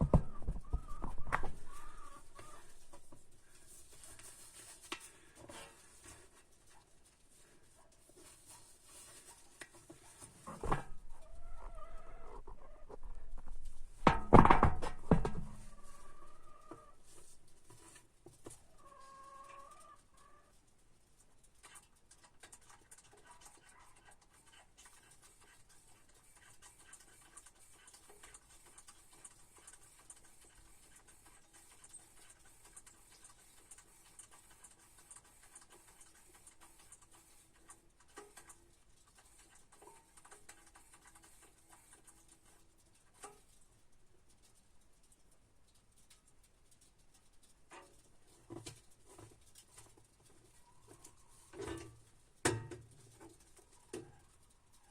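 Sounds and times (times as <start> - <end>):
chickens clucking: 0.0 - 3.6, 10.5 - 13.9, 14.6 - 17.1, 18.6 - 20.7, 50.5 - 51.6
faint ticks: 24.9 - 51.2.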